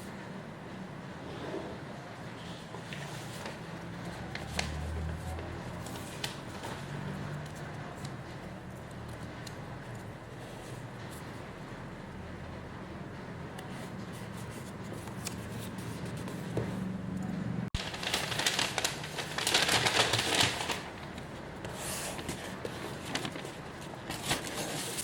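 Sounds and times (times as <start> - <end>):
plastic packaging crinkling: 17.8 - 21.2.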